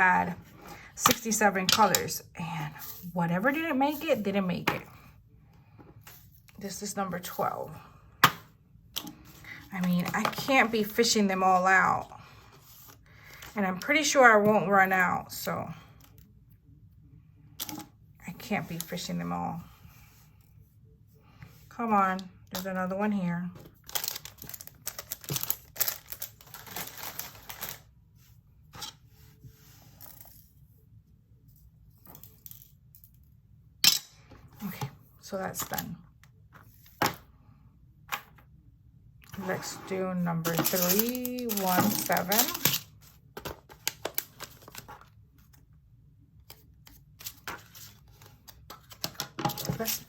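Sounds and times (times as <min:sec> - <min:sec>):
plastic items clicking and rustling: 0:23.6 - 0:27.8, 0:40.4 - 0:45.1, 0:47.2 - 0:50.0.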